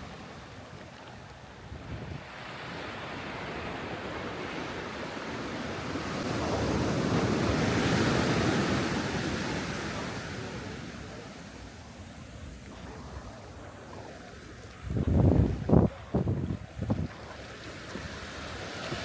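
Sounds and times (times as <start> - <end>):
waves breaking on beach: 0.0 - 19.0
wind on microphone: 1.6 - 2.3, 14.7 - 19.0.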